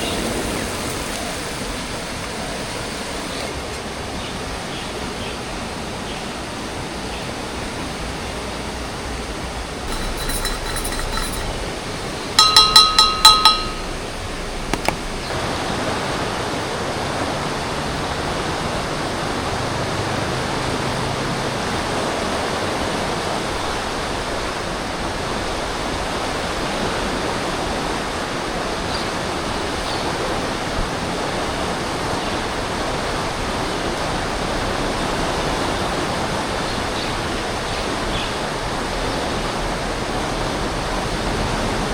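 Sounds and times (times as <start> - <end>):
ringing clinks: 9.9 - 14.2.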